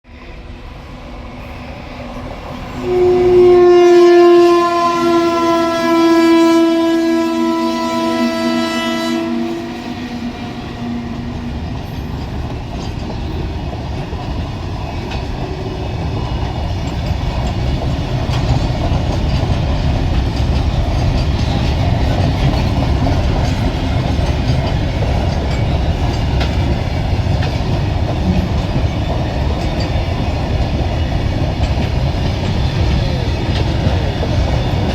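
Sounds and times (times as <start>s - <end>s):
train rumble: 0.1s - 34.9s
locomotive horn blast: 2.8s - 11.4s.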